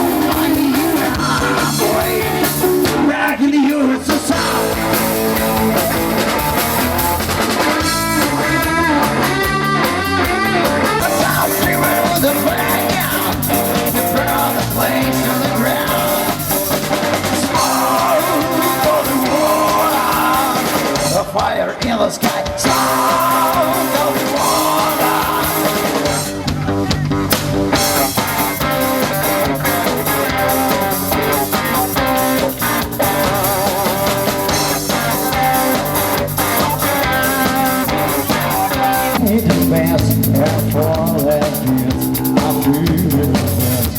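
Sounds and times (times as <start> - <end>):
drum kit: 0.0 - 43.9
electric guitar: 0.0 - 43.9
melodic lead line: 22.7 - 42.7.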